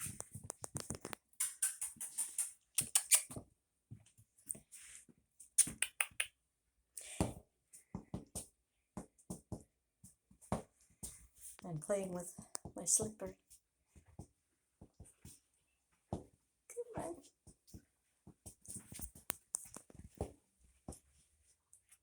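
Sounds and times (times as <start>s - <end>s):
puppy paws scrabbling: 0.0s - 4.7s, 10.3s - 21.2s.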